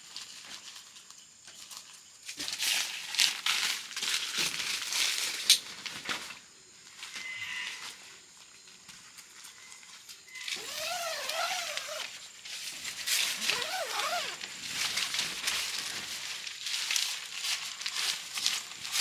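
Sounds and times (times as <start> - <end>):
tent fabric crinkling and rustling: 0.0 - 19.0.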